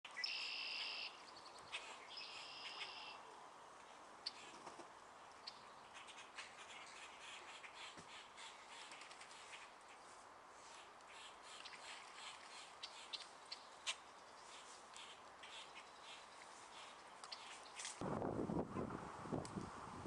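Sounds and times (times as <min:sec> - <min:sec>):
faint bird chirps and ticks: 0:00.1 - 0:03.2, 0:03.8 - 0:18.0
harsh buzzy bird calls: 0:00.1 - 0:03.2, 0:05.4 - 0:18.0.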